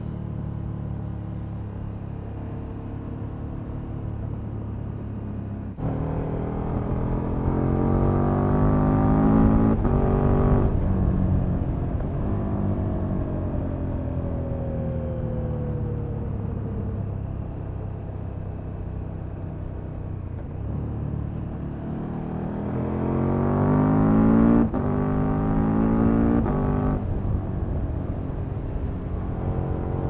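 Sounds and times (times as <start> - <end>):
motorcycle engine revving: 20.8 - 30.0.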